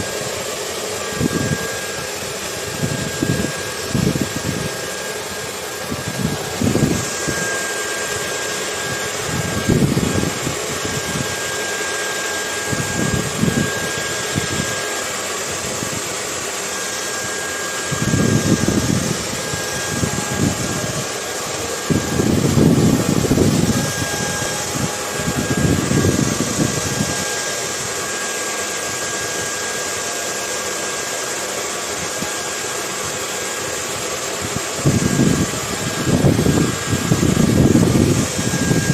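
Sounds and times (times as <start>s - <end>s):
hair dryer running: 0.0s - 38.9s
wind gusts: 1.0s - 11.4s, 17.8s - 28.1s.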